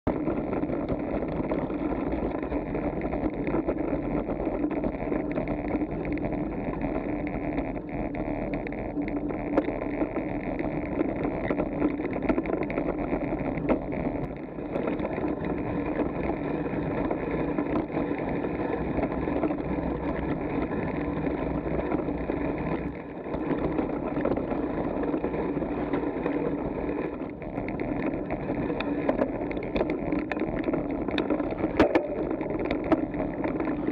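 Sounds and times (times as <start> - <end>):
bicycle road and wind noise: 0.0 - 33.9
faint clicks: 0.4 - 33.9.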